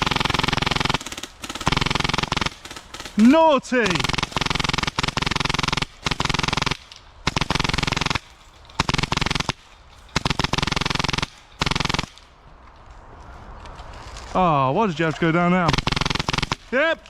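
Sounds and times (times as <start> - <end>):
airsoft gun firing bursts: 0.0 - 12.4, 15.7 - 16.8.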